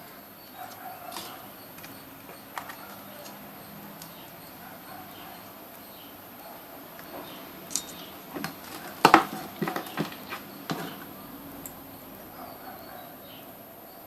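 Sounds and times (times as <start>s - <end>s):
small hard objects clicking: 7.7s - 11.8s.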